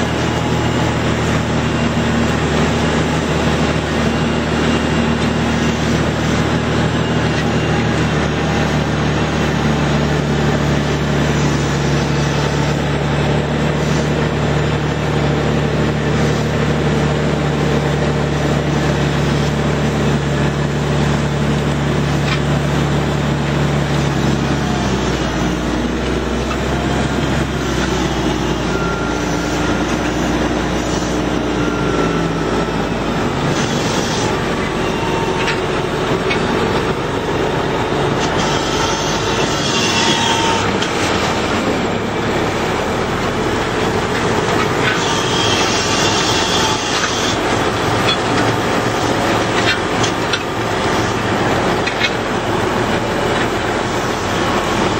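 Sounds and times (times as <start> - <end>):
heavy vehicle rumbling: 0.0 - 54.9
high squeals: 23.8 - 51.8.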